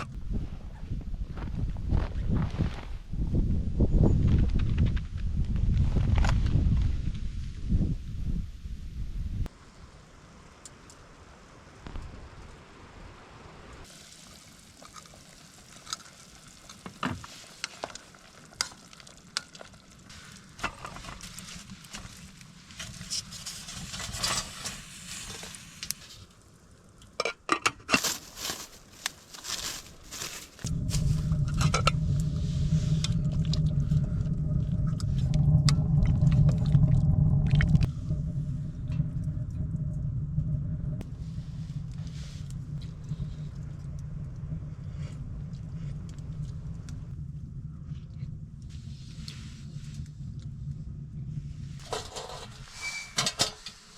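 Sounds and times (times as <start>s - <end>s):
steady low hum: 28.0s - 52.8s.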